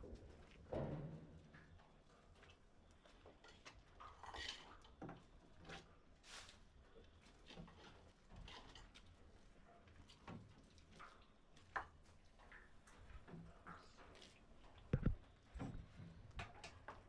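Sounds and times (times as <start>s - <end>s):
small clicks and knocks: 10.9s - 17.0s.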